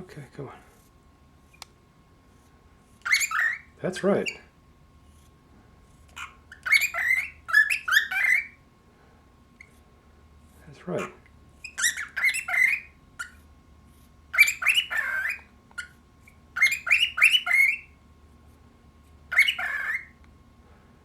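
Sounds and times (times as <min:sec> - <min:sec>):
cockatiel chattering: 0:03.0 - 0:04.5, 0:06.0 - 0:08.6, 0:11.0 - 0:13.5, 0:14.3 - 0:17.9, 0:19.3 - 0:20.2.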